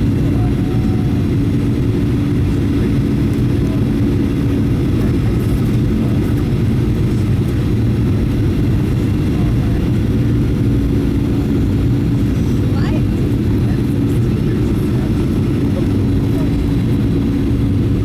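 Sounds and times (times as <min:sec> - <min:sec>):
airplane cabin engine rumble: 0:00.0 - 0:18.0
steady low hum: 0:00.0 - 0:18.0.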